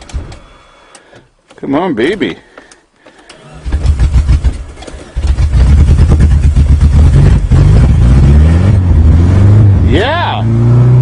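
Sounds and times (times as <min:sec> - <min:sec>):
engine cranking and starting: 0:03.1 - 0:07.0.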